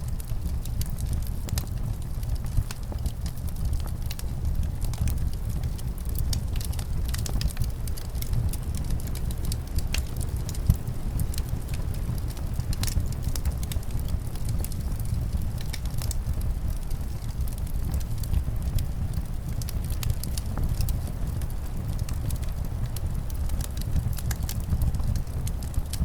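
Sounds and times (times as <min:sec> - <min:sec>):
low rumble of wind: 0:00.0 - 0:26.0
wood fire crackling: 0:00.0 - 0:26.0.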